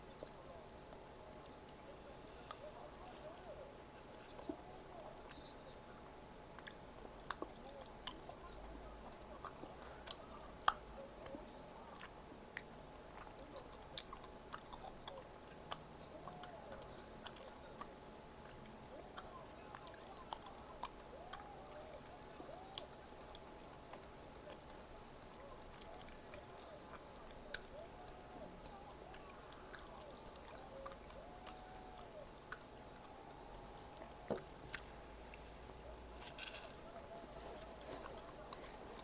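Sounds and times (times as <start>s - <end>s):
person chewing food: 6.6s - 8.8s, 9.4s - 39.0s
small crunches: 29.1s - 39.0s.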